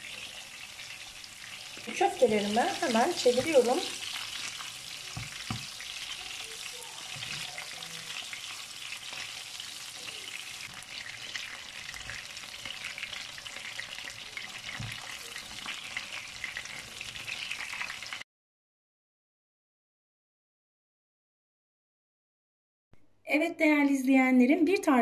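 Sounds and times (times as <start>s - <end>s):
patties sizzling in oil: 0.0s - 18.2s
spatula knocking on pan: 3.2s - 3.8s, 5.1s - 5.8s.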